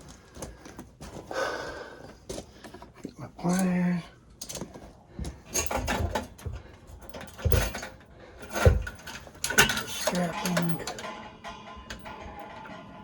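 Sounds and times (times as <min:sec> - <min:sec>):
tools knocking and clattering: 0:04.4 - 0:13.0
heavy thumps: 0:05.2 - 0:09.7.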